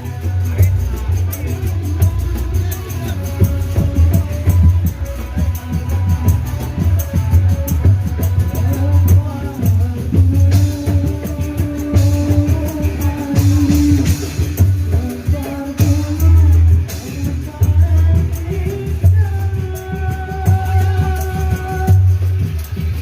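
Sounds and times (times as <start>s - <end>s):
person singing: 0.0s - 22.3s
heavy drum beats: 0.0s - 23.0s.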